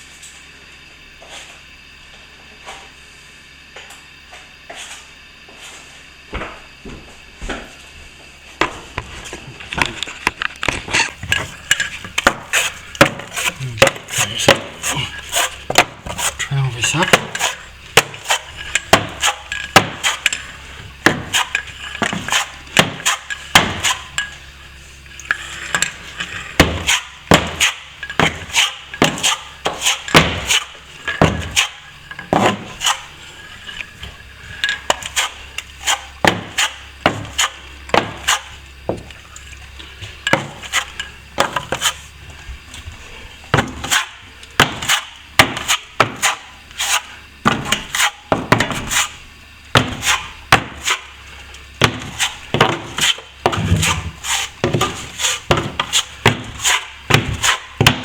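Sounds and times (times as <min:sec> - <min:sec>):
trowel scraping plaster: 0:11.0 - 0:24.4, 0:25.0 - 0:38.6, 0:39.8 - 0:42.1, 0:43.6 - 0:49.2, 0:49.8 - 0:58.0
steel trowel clinking: 0:11.1 - 0:24.5.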